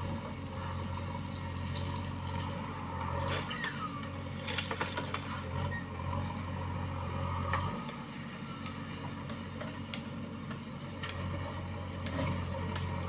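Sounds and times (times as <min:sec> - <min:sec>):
diesel engine running: 0:00.0 - 0:13.0
falling squeal: 0:03.3 - 0:04.1, 0:05.6 - 0:06.0.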